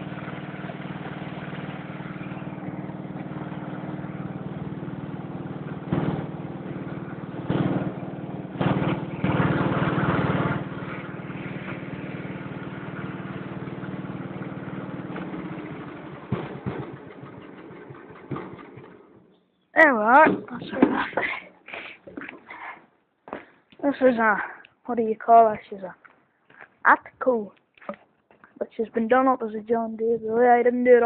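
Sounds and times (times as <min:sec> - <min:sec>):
engine knocks: 0:00.0 - 0:19.4
garden tractor engine running: 0:00.0 - 0:21.0.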